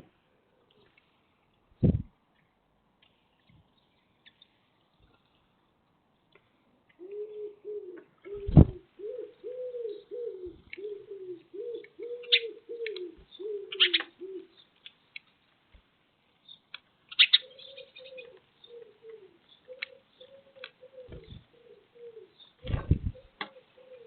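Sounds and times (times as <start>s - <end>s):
pigeon cooing: 7.0s - 14.6s, 17.2s - 24.0s.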